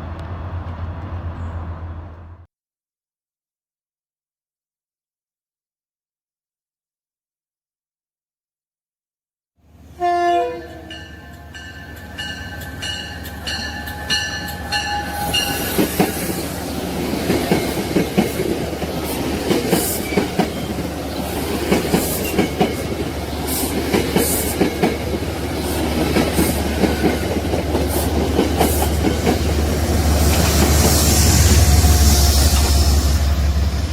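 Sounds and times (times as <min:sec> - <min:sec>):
train horn chord: 0:10.0 - 0:15.7
train wheels clicking over rail joints: 0:12.9 - 0:32.9.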